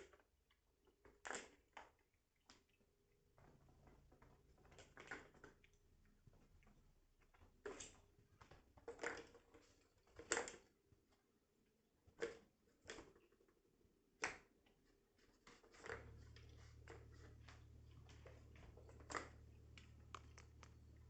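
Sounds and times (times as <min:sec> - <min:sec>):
low steady hum: 0:16.0 - 0:21.0.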